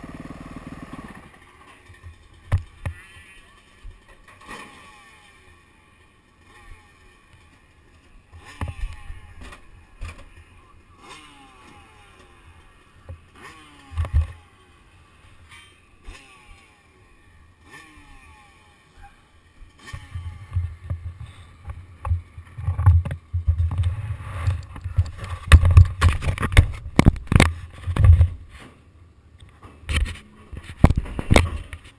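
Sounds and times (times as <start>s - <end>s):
motocross bike engine revving: 0.0s - 28.4s.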